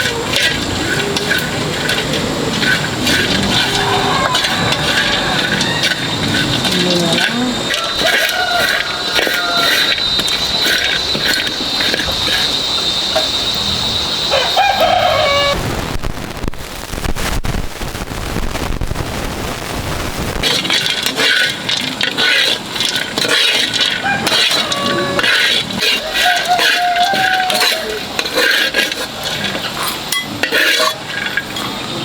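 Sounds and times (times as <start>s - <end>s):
rooster crowing: 0.0s - 11.1s, 14.2s - 15.6s, 23.6s - 28.4s
scraping clicks: 0.0s - 12.5s.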